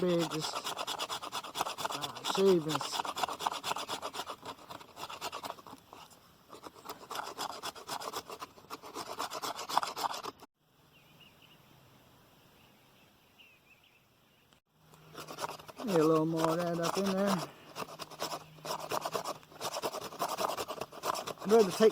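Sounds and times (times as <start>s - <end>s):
blade scraping wood shavings: 0.0s - 10.5s, 15.0s - 21.9s.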